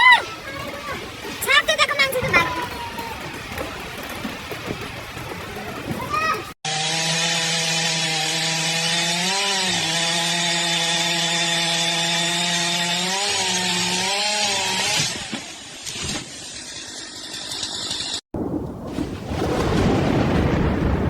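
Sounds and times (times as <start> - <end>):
small motor running at high speed: 6.7 - 15.1.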